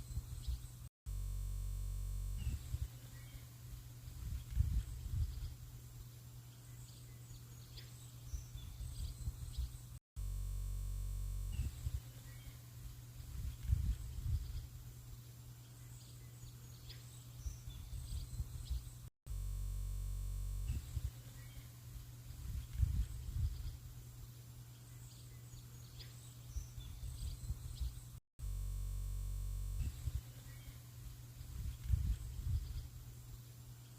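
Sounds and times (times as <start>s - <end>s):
steady buzz: 0.0s - 6.4s, 8.5s - 15.2s, 17.8s - 24.3s, 28.4s - 33.6s
steady low hum: 0.0s - 33.9s
faint bird chirps: 2.3s - 10.0s, 11.5s - 19.1s, 20.7s - 28.2s, 29.8s - 33.9s.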